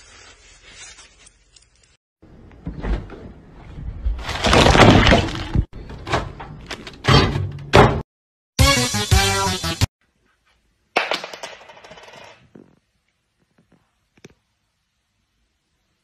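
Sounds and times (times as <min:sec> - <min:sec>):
loud crashing and breaking: 0:04.2 - 0:05.7.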